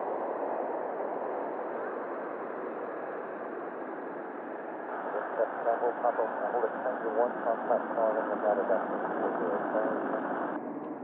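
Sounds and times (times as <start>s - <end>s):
radio channel hiss: 4.8s - 10.6s.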